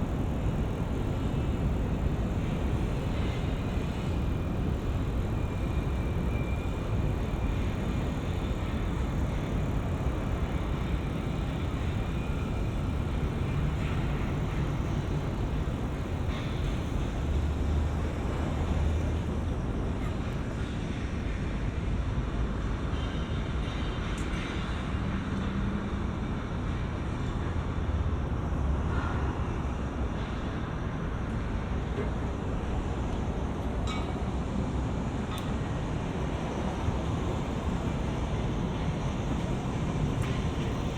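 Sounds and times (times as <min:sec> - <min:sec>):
road traffic rumble: 0:07.2 - 0:21.7.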